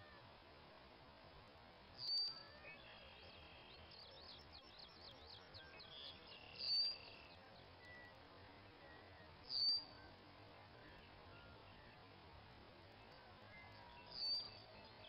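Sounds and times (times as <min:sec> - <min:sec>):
whistled bird notes: 0:02.0 - 0:08.2, 0:08.8 - 0:10.1, 0:13.4 - 0:15.0.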